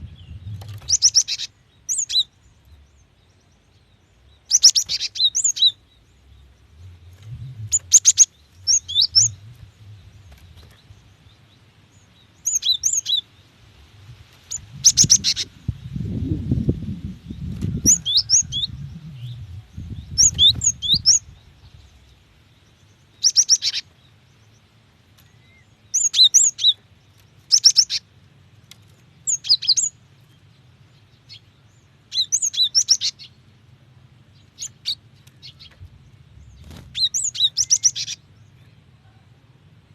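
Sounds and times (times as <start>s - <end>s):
low rumble: 0.0s - 1.0s, 5.9s - 11.6s, 13.7s - 22.3s.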